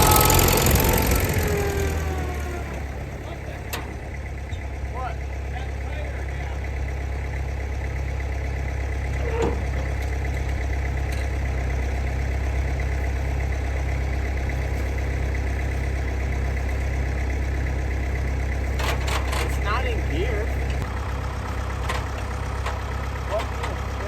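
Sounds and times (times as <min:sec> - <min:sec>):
tractor engine idling: 0:00.0 - 0:24.0.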